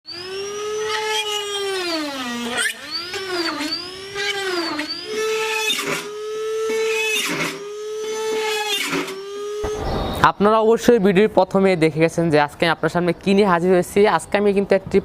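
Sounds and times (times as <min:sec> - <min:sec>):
short rasping bursts: 0:00.1 - 0:09.8
drill motor whining: 0:00.1 - 0:10.3.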